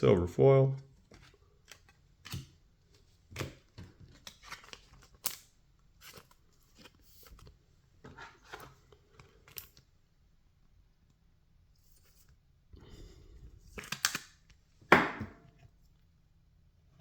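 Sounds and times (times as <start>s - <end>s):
trading cards swishing and snapping: 13.7s - 14.4s.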